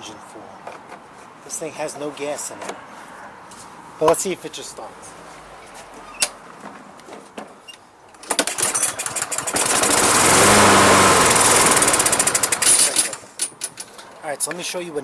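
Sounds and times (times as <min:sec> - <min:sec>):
lawn mower engine cranking: 0:08.1 - 0:14.2
lawn mower engine running: 0:08.2 - 0:13.4.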